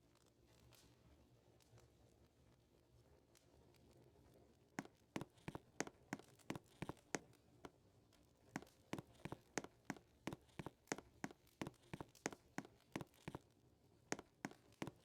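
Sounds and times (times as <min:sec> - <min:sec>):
sharp irregular footsteps: 0:04.8 - 0:07.2, 0:08.6 - 0:13.4, 0:14.1 - 0:15.0.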